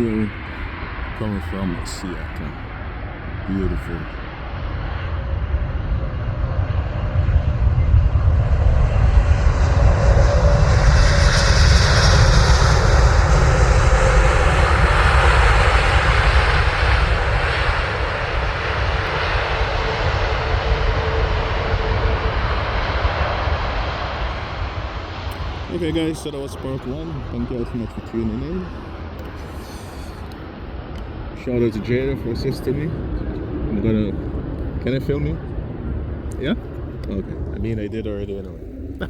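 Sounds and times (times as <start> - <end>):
jet engines rumble and hiss: 0.0 - 39.0
faint steady whine: 17.9 - 39.0.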